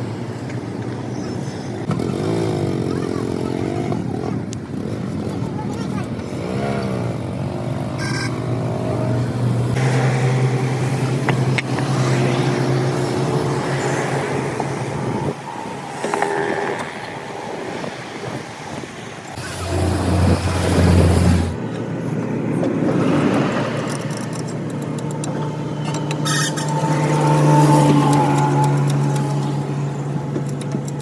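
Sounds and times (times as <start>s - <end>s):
vehicle engines running: 0.0s - 31.0s
deep engine hum: 19.4s - 23.4s.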